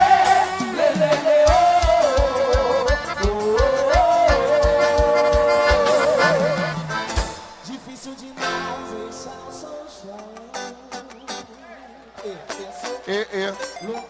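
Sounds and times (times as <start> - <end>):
bass drum beat: 0.0 - 7.4
accordion melody with vibrato: 0.0 - 10.2, 12.9 - 14.0.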